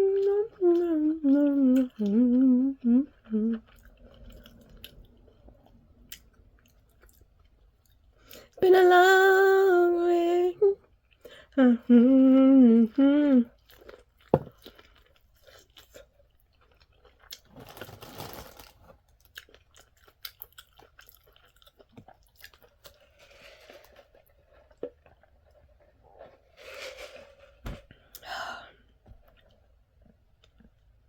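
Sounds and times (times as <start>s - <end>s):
person humming: 0.0s - 3.7s, 8.6s - 10.8s, 11.5s - 13.5s
crunchy chewing: 13.6s - 26.7s.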